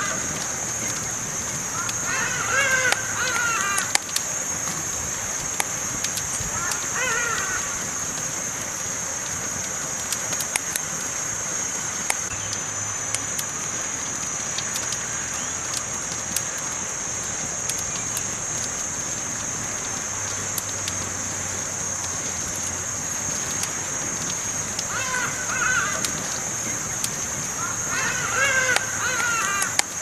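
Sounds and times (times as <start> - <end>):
campfire crackling and popping: 0.0 - 30.0
steady hiss: 0.0 - 30.0.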